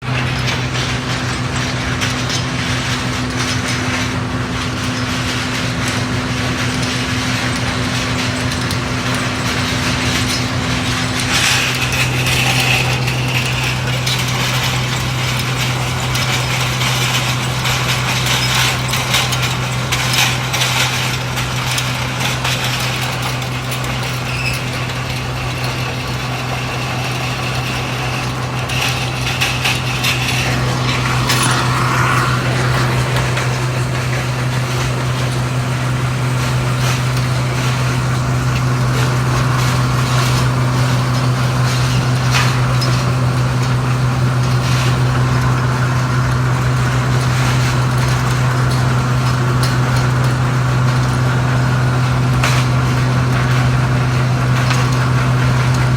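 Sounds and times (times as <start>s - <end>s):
rushing rattling noise: 8.9s - 43.4s
motor hum: 10.1s - 55.9s.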